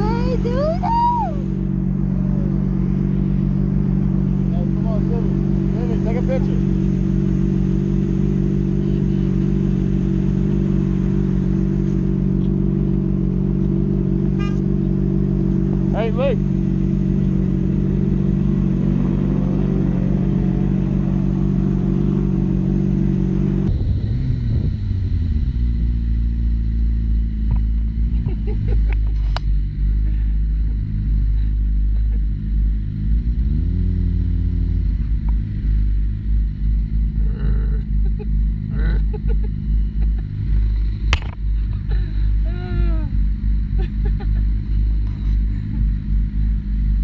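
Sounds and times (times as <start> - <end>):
motorcycle engine revving: 0.0 - 47.0
wind rumble on microphone: 23.6 - 26.4.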